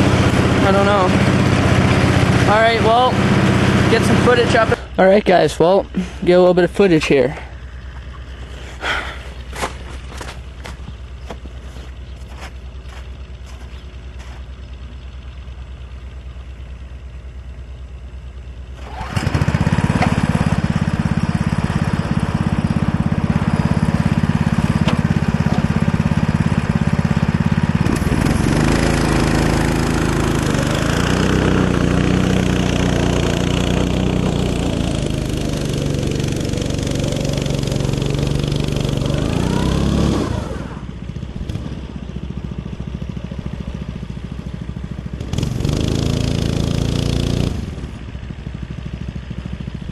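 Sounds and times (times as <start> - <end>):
go-kart engine revving: 0.0 - 5.2, 18.7 - 49.9.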